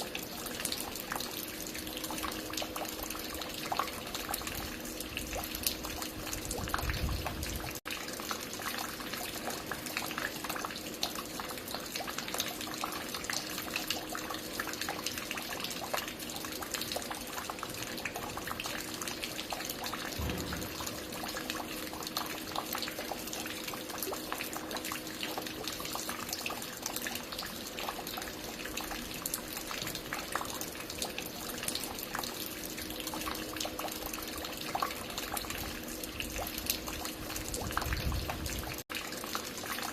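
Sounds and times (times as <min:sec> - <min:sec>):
low thud: 0:20.2 - 0:20.9.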